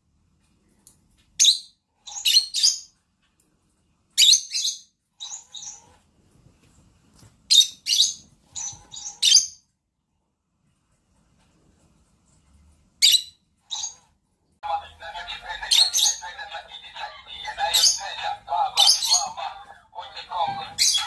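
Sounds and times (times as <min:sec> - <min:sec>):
bird chirping: 0:01.4 - 0:03.0, 0:04.2 - 0:06.0, 0:07.5 - 0:09.7, 0:13.0 - 0:14.1, 0:15.6 - 0:21.0.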